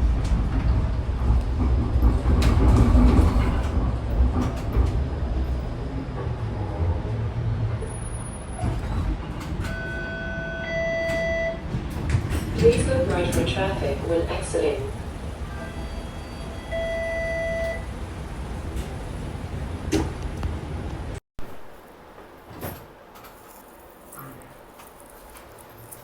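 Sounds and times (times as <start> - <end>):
streetcar rumbling on rails: 0.0 - 23.4.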